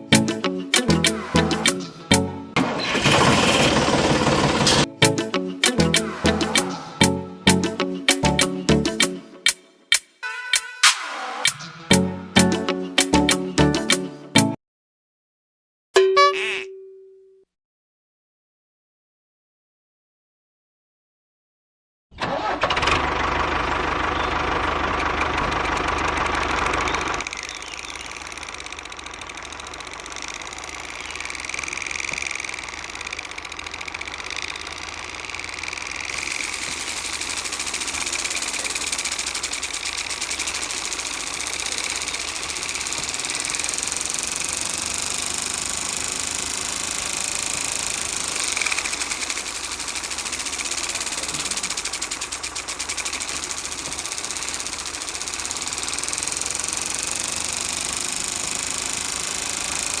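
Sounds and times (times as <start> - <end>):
small electric motor whirring: 24.8 - 60.0.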